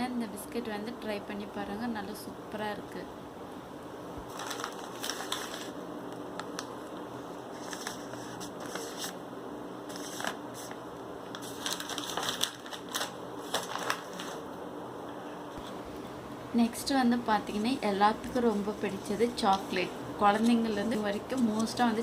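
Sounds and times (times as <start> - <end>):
plastic wrapper crinkling: 4.3 - 6.8, 9.9 - 14.4.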